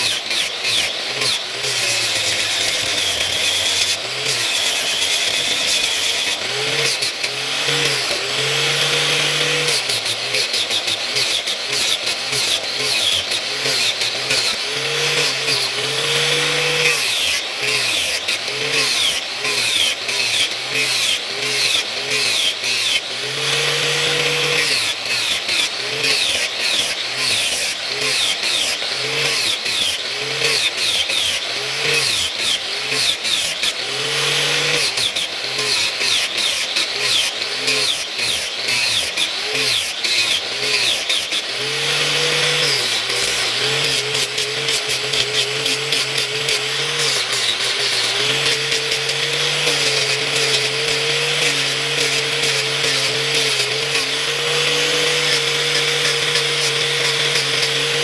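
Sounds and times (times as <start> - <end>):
electric grinder grinding metal: 0.0 - 58.0.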